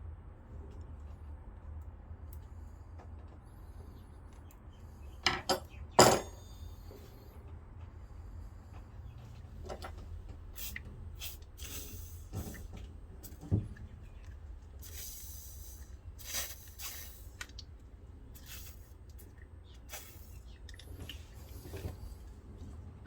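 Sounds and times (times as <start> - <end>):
steady low hum: 0.0 - 23.0
rustles and scrapes of handling: 18.3 - 22.8.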